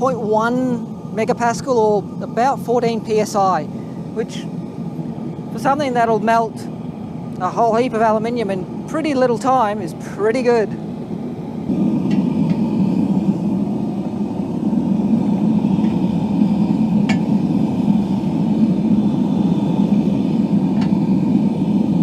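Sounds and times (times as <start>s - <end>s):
gas burner rushing: 0.0s - 22.0s.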